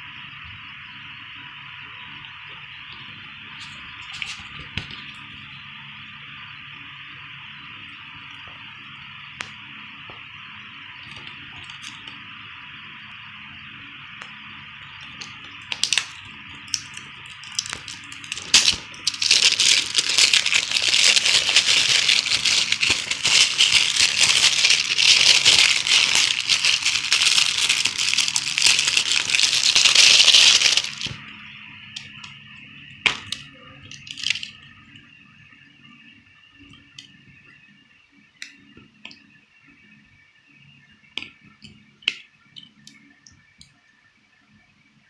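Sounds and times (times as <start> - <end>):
faint steady hum: 0.0 - 45.0
packaging crinkling and rustling: 3.6 - 5.1, 15.1 - 31.2, 33.1 - 34.6
packaging clicks and taps: 15.2 - 31.2.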